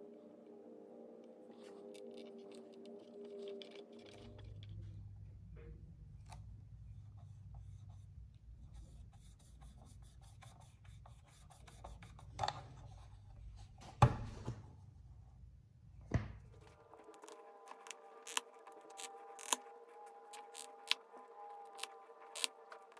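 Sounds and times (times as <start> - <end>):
low steady hum: 0.0 - 22.9
hands rubbing metal toy: 16.7 - 21.0, 21.6 - 22.9.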